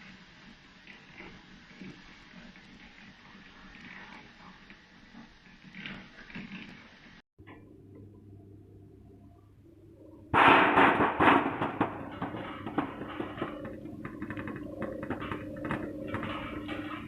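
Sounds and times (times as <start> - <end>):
machinery humming: 7.4 - 17.0
clattering knocks: 10.4 - 17.0.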